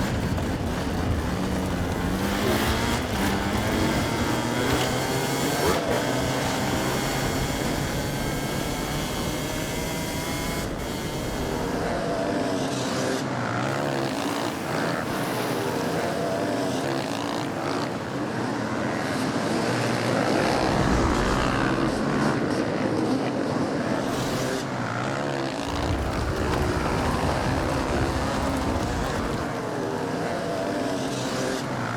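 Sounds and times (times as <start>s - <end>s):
motorcycle engines revving: 0.0s - 31.9s
deep rumble: 25.6s - 29.5s.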